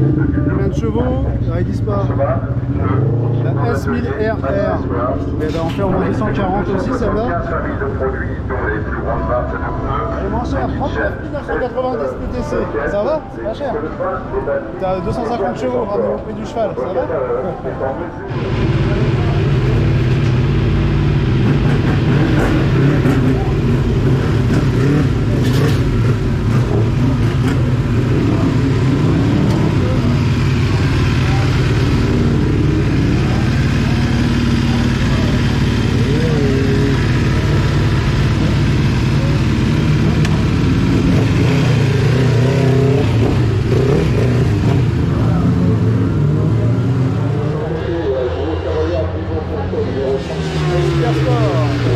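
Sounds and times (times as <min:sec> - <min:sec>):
motorcycle engine running: 0:18.3 - 0:47.4.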